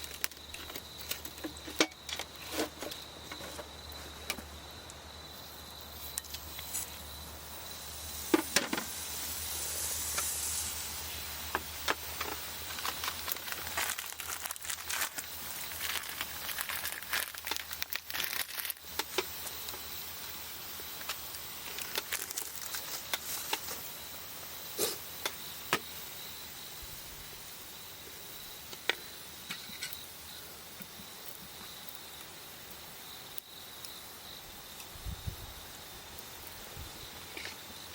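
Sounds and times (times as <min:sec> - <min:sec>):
campfire crackling and popping: 0:00.0 - 0:25.9, 0:28.6 - 0:34.9
high insect trill: 0:00.0 - 0:37.9
brief hiss: 0:07.8 - 0:11.4.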